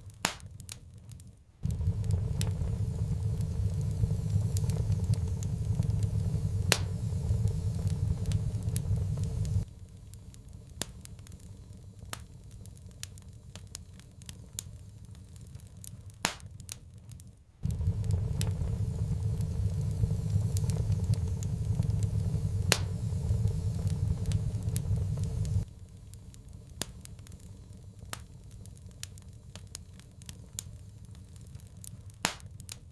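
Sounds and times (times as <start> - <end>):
wood fire crackling: 0.0 - 32.9
low rumble: 1.6 - 10.1, 17.6 - 29.5.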